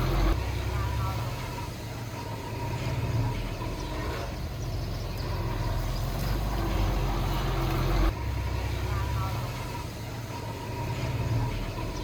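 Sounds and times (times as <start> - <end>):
heavy diesel machinery running: 0.0 - 12.0.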